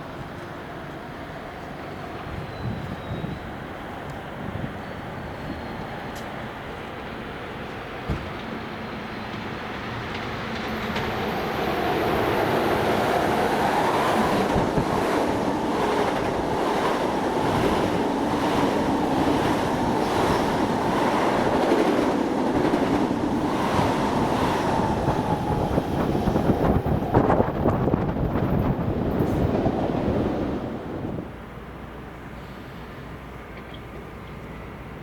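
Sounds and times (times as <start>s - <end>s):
train wheels rushing on rails: 4.1s - 31.5s.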